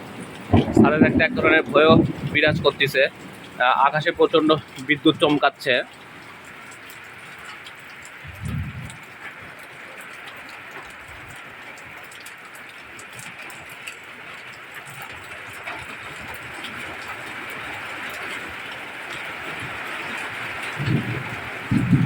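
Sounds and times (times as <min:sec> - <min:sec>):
rain drop ticks: 0:00.0 - 0:22.0
steady rain falling: 0:00.0 - 0:22.0.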